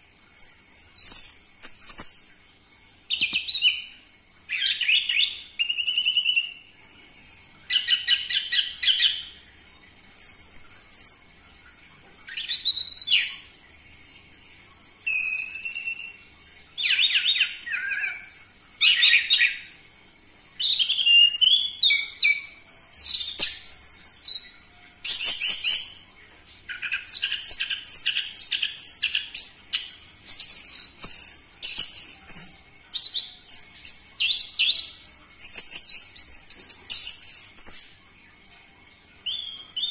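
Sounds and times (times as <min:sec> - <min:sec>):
thrush singing whistled phrases: 0:15.1 - 0:18.2.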